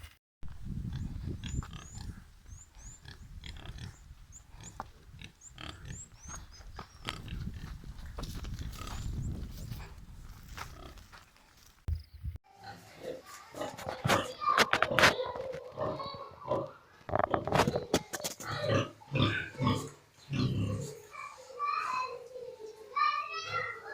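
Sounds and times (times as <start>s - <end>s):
pigs grunting: 0.8s - 6.4s, 12.6s - 21.1s.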